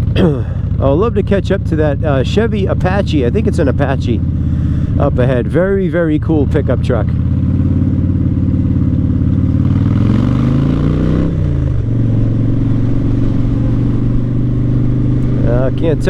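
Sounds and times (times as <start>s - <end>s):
motorcycle engine revving: 0.0s - 16.0s
wind rush: 11.4s - 16.0s.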